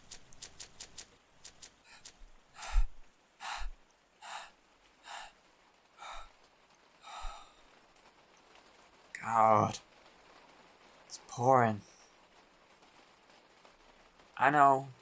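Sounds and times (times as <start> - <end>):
man gasping for breath: 2.6 - 5.4, 6.0 - 6.4, 7.0 - 7.6.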